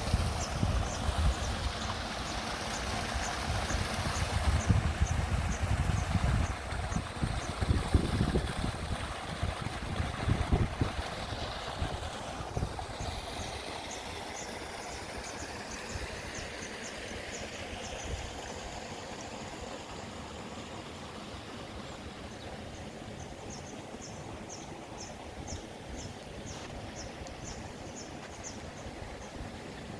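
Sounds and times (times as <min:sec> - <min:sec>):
rushing water: 0:00.0 - 0:29.9
wind rumble on microphone: 0:03.4 - 0:13.2.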